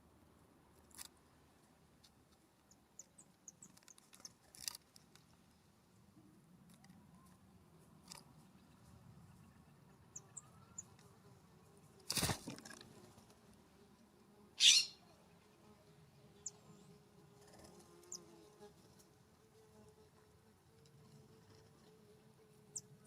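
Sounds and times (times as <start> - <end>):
birds chirping: 14.6 - 15.0.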